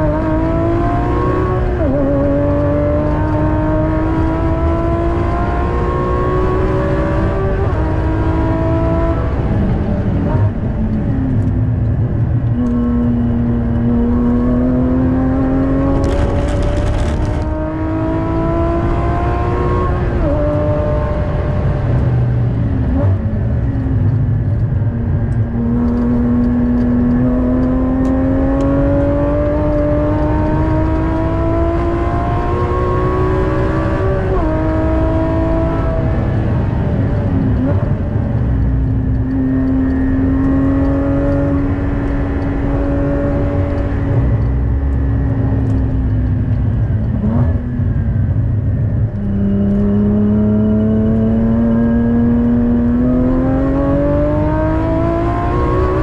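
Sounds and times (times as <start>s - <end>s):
car engine revving with upshifts: 0.0s - 56.0s
tyre and road rumble: 15.4s - 18.0s.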